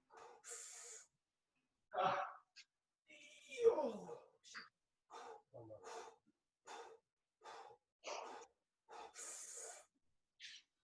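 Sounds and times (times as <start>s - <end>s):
person panting: 0.0s - 1.1s, 5.1s - 9.9s.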